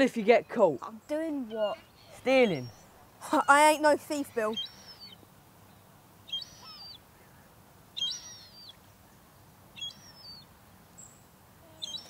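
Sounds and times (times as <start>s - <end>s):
bird whistling call: 6.3s - 7.0s, 8.0s - 8.8s, 9.8s - 10.4s, 11.8s - 12.0s.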